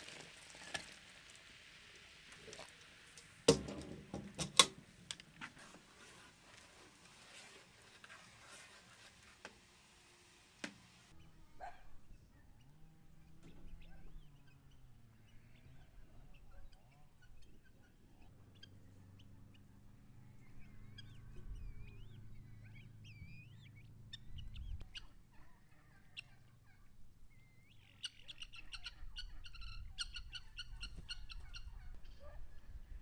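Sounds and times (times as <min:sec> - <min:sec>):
background hiss: 0:00.0 - 0:11.1
sharp knocks and clatters: 0:03.5 - 0:04.9.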